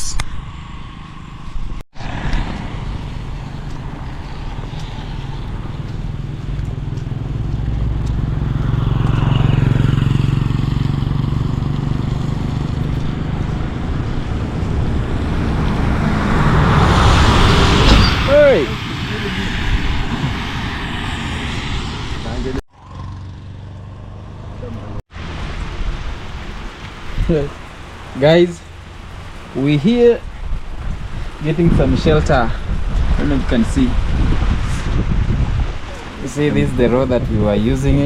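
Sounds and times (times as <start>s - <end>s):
vehicles passing on wet road: 0.1s - 38.0s
heavy rain: 25.1s - 37.1s.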